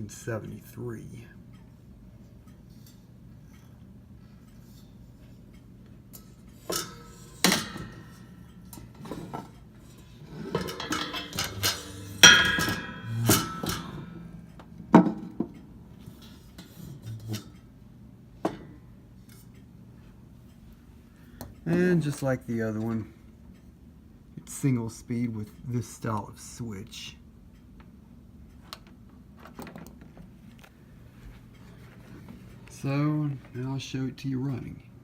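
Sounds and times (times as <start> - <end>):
metal fan knocking and clinking: 4.5 - 17.8, 21.6 - 23.0.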